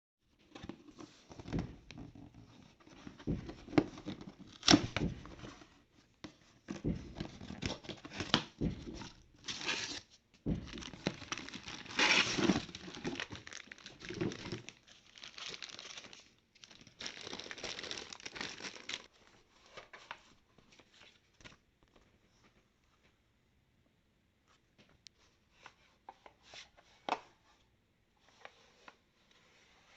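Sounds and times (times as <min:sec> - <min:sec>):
packaging tearing and crinkling: 0:09.4 - 0:10.0, 0:10.7 - 0:19.1.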